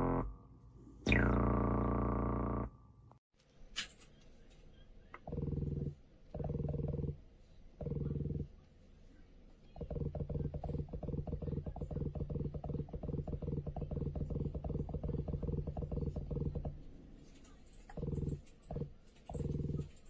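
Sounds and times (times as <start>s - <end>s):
synthesizer bassline: 0.0s - 0.3s, 1.1s - 2.7s, 9.8s - 16.8s.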